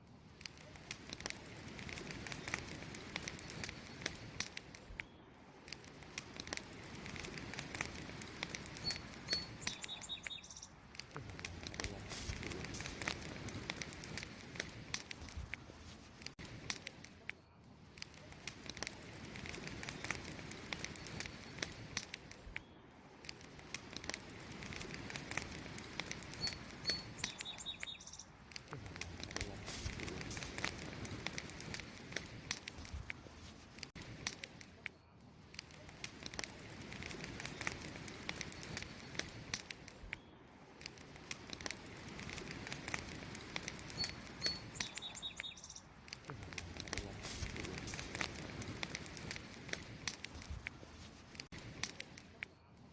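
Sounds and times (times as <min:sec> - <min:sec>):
campfire crackling and popping: 0:00.0 - 0:52.9
bird chirping: 0:08.8 - 0:10.8, 0:26.3 - 0:28.4, 0:43.9 - 0:45.9.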